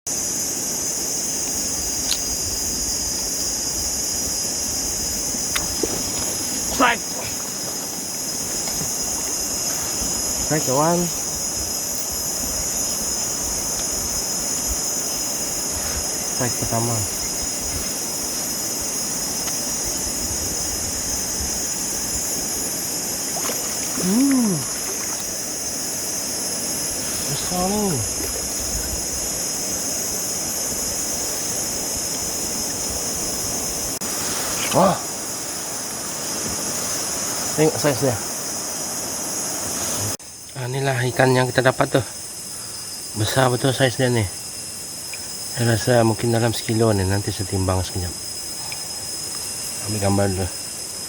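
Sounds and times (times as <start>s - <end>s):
high-pitched insect chorus: 0.1s - 51.0s
river water rushing: 3.0s - 40.2s
voice-like ooh: 24.0s - 24.8s.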